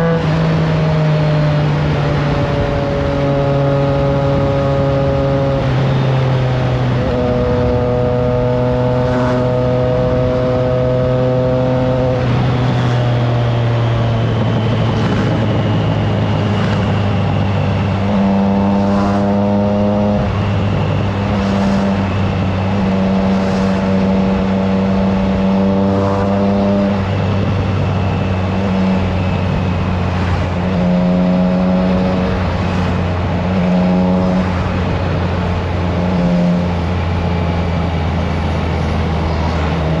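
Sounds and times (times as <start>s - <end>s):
motorcycle engine accelerating: 0.0s - 40.0s.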